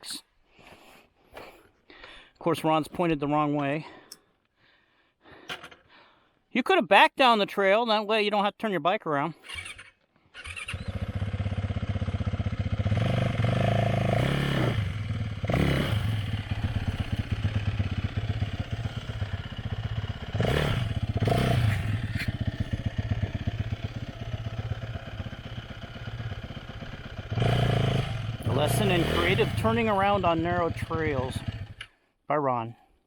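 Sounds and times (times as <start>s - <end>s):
engine throttle blips: 10.4s - 31.9s
dirt bike engine idling: 10.5s - 32.0s.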